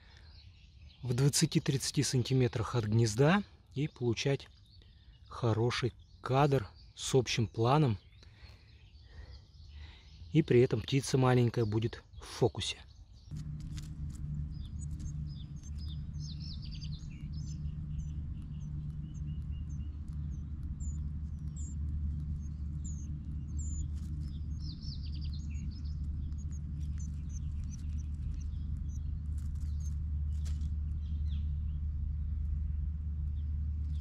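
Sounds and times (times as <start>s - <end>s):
small birds chirping: 0.0s - 34.0s
low hum: 13.2s - 34.0s.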